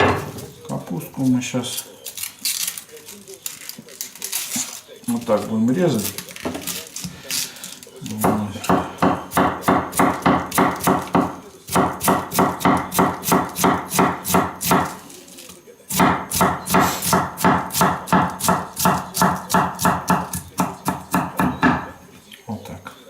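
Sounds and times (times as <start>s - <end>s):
knife slicing cabbage on board: 8.2s - 15.0s, 16.0s - 21.2s.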